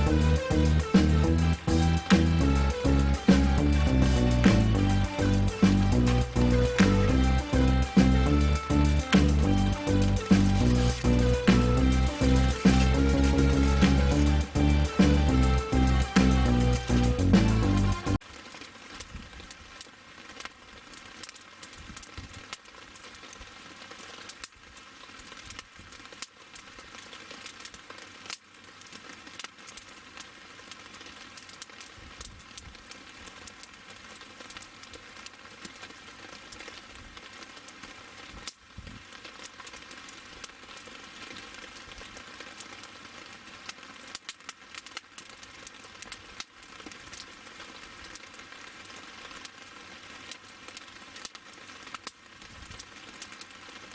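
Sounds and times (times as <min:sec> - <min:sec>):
wood fire crackling and hissing: 0:00.0 - 0:53.9.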